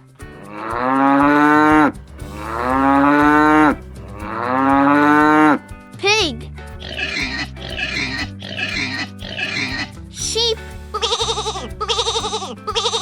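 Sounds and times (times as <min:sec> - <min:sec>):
cow mooing: 0:00.5 - 0:05.6.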